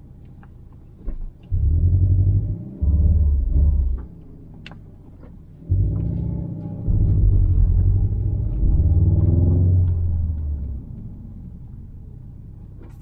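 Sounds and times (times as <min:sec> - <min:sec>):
car engine accelerating: 0:01.0 - 0:13.0.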